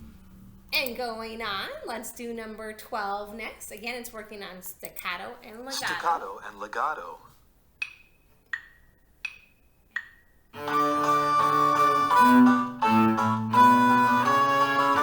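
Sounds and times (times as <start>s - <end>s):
bowed string ensemble: 10.6s - 15.0s.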